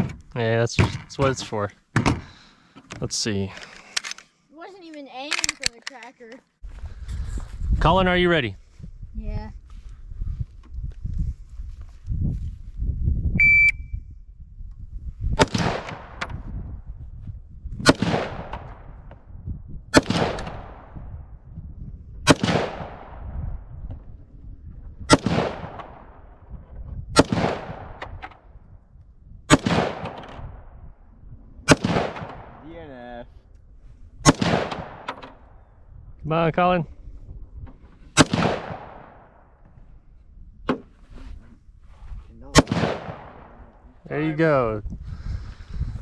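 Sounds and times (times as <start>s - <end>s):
short high electronic beep: 13.4s - 14.0s
gunshots with echo: 17.8s - 18.9s, 22.3s - 23.4s, 25.1s - 26.2s, 27.2s - 28.0s, 29.5s - 30.4s, 31.7s - 32.7s, 34.2s - 35.2s, 38.2s - 39.4s, 42.5s - 43.7s.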